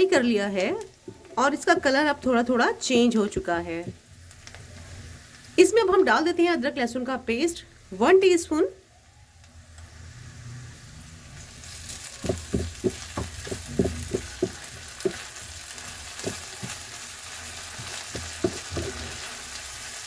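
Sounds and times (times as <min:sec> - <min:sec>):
onions sizzling in hot oil: 0:00.0 - 0:20.0
wooden spatula scraping a pan: 0:12.1 - 0:19.4.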